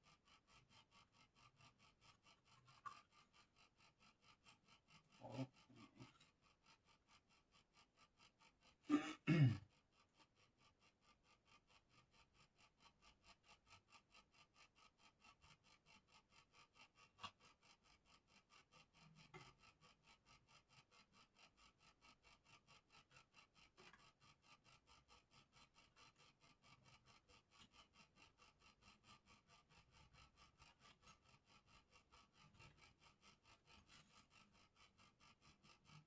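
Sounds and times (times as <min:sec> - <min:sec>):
sanding wood back and forth: 0:15.1 - 0:36.0.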